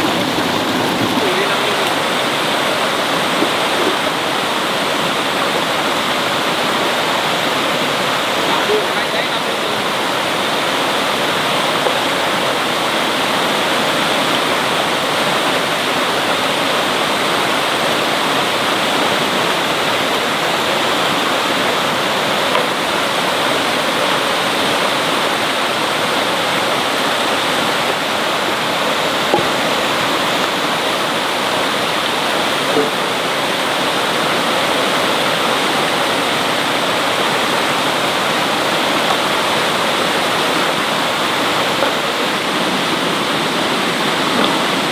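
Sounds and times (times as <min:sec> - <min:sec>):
heavy rain falling: 0:00.0 - 0:44.9
small knocks: 0:29.3 - 0:29.6.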